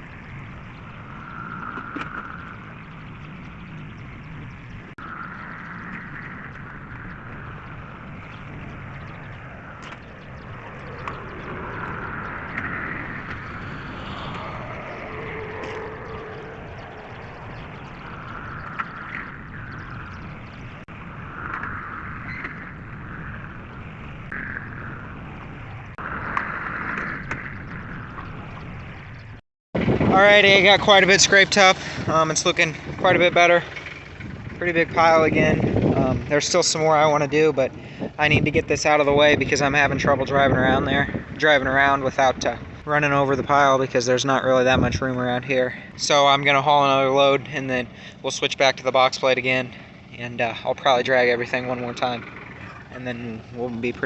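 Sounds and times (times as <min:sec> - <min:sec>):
tractor engine rumbling: 0:00.0 - 0:44.9, 0:47.2 - 0:54.0.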